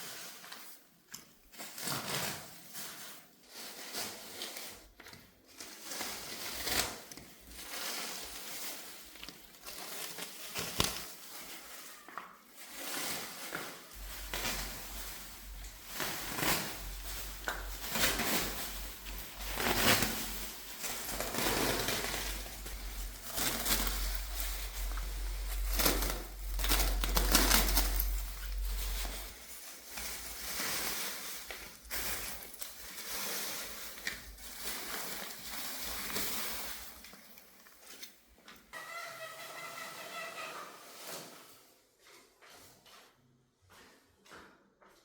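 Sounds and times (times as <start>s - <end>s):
hand tools scraping on floor: 12.4s - 37.1s
low rumble: 20.2s - 29.4s.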